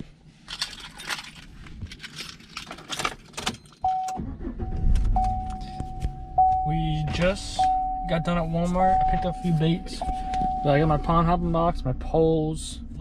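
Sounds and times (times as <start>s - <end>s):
car keys jangling: 0.5s - 7.6s
car warning chime pinging: 3.7s - 11.8s
low engine rumble: 4.2s - 13.0s.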